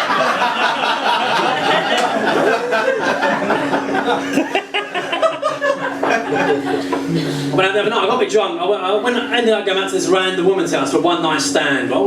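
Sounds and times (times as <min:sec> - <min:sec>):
audience laughing: 0:00.0 - 0:07.6.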